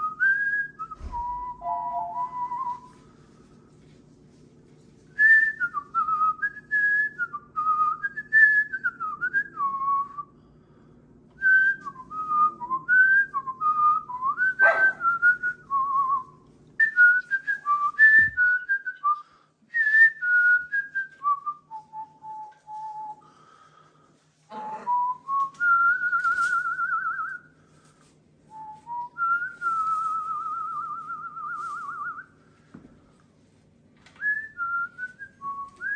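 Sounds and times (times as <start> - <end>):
person whistling a tune: 0.0 - 3.1, 5.2 - 10.3, 11.4 - 23.3, 24.9 - 27.5, 28.5 - 32.4, 34.2 - 35.9.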